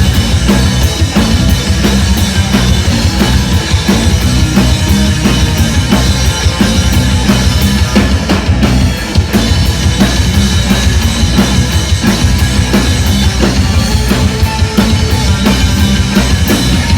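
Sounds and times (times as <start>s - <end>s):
bass: 0.0s - 16.9s
drum kit fast beat: 0.0s - 16.9s
guitar: 0.0s - 16.9s.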